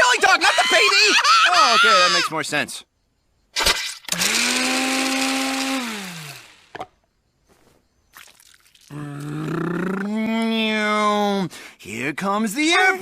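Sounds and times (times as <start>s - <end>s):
cartoon blender whirring: 3.6s - 6.8s.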